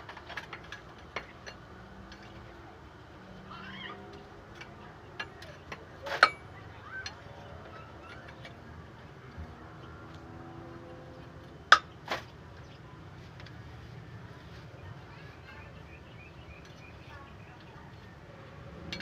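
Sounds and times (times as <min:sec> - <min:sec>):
hand tools clinking on metal: 0:04.1 - 0:08.6.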